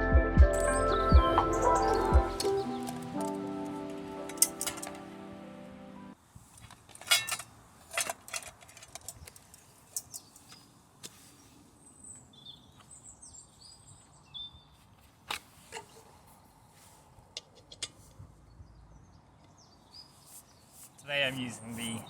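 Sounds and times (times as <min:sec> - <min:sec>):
small bird chirping: 0:00.6 - 0:03.2.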